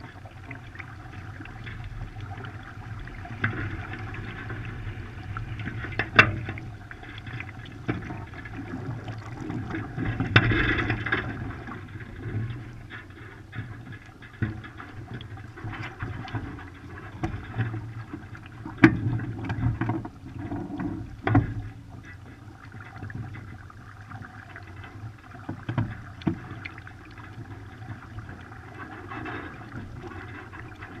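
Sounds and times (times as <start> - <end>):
water splashing against hulls: 0.0 - 31.0.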